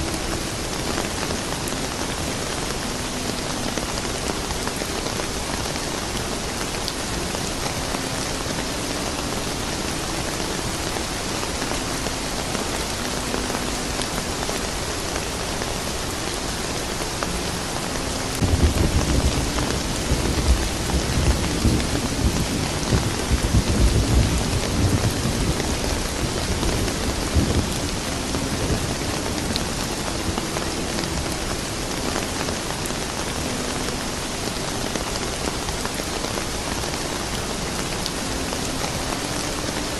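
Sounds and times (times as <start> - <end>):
steady rain falling: 0.0 - 39.9
thunder rumbling: 18.3 - 32.0.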